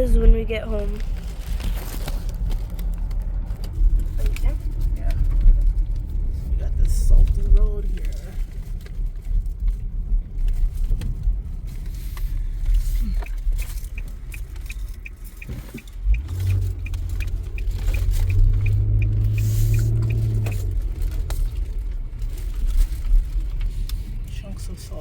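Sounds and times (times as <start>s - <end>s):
car road noise: 0.0s - 25.0s
light regular ticking: 2.7s - 22.3s.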